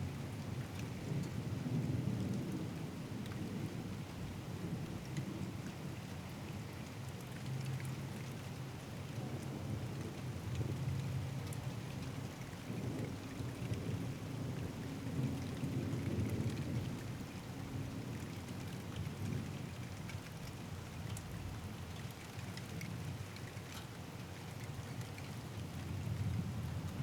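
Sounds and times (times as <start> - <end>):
steady rain: 0.0 - 27.0
low rumble of thunder: 12.4 - 19.7.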